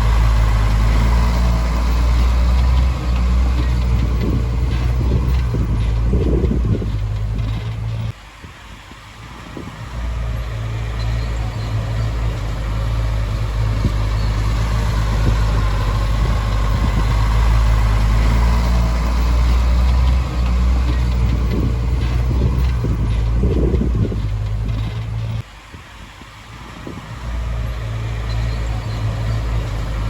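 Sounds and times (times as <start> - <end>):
clatter: 0.0 - 8.2, 10.9 - 25.5
heavy diesel engine droning: 0.0 - 30.0.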